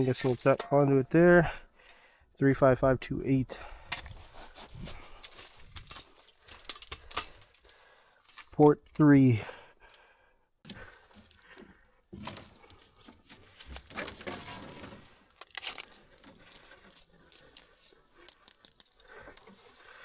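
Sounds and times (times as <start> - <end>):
rustling and crinkling handling: 0.0 - 0.8, 4.0 - 9.0, 10.7 - 20.0.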